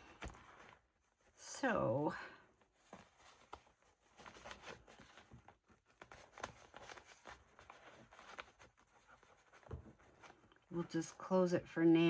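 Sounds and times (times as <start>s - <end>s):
paper rustling and tapping: 0.0s - 0.8s, 2.7s - 10.7s.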